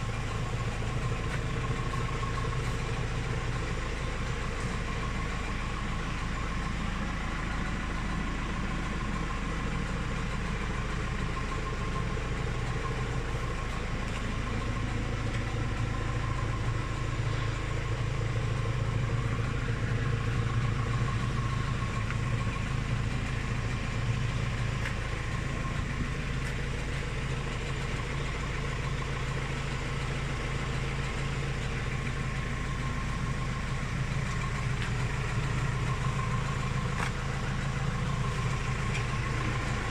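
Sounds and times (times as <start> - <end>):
round baler running: 0.0 - 39.9
tractor engine running: 0.0 - 39.9.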